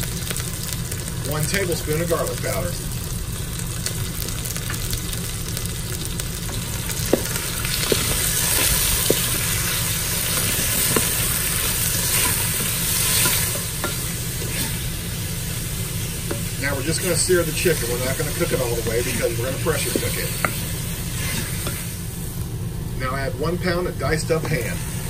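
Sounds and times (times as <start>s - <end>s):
chicken sizzling in hot oil: 0.0s - 25.0s
wooden spoon stirring: 16.3s - 21.9s.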